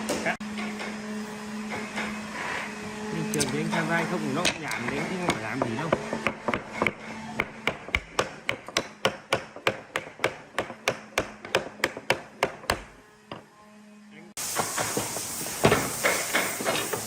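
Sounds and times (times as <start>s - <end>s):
hammering on wood: 4.4s - 13.4s.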